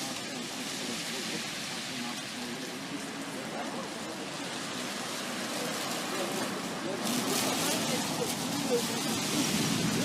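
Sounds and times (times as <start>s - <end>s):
rain hissing: 0.0s - 10.0s.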